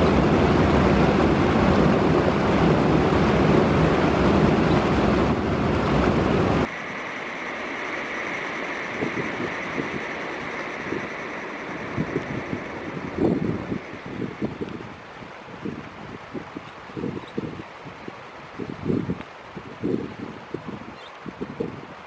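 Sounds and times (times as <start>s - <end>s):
wind buffeting microphone: 0.0s - 6.7s, 8.9s - 22.0s
quiet outdoor ambience: 0.0s - 16.9s
faint steady high tone: 6.6s - 14.4s.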